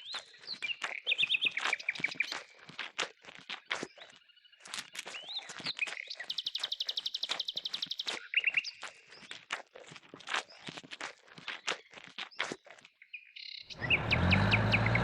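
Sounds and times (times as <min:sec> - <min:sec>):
fast bird trill: 0:00.0 - 0:02.6, 0:05.1 - 0:09.4
birds chirping: 0:00.0 - 0:02.7, 0:03.4 - 0:09.4, 0:11.4 - 0:15.0.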